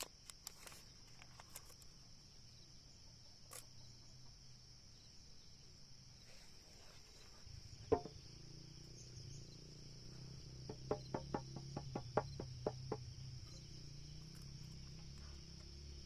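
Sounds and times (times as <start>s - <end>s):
high-pitched insect trilling: 7.2s - 16.0s
sharp knock: 7.9s - 8.2s, 10.7s - 13.0s.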